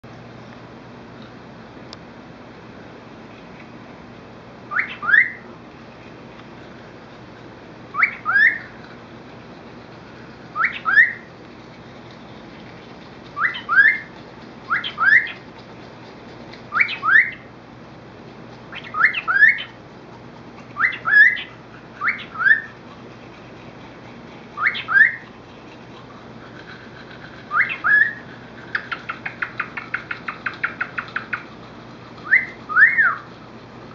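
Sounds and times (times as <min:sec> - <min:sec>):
cockatiel chirping: 0:04.7 - 0:05.4, 0:08.0 - 0:08.7, 0:10.6 - 0:11.3, 0:13.4 - 0:14.1, 0:14.7 - 0:15.4, 0:16.7 - 0:17.5, 0:18.7 - 0:19.8, 0:20.8 - 0:22.7, 0:24.6 - 0:25.2, 0:27.5 - 0:31.4, 0:32.3 - 0:33.2
cockatiel whistling: 0:04.7 - 0:05.4, 0:08.0 - 0:08.7, 0:10.6 - 0:11.3, 0:13.4 - 0:14.1, 0:14.7 - 0:15.4, 0:16.7 - 0:17.5, 0:18.7 - 0:19.8, 0:20.8 - 0:22.7, 0:24.6 - 0:25.2, 0:27.5 - 0:28.2, 0:32.3 - 0:33.2.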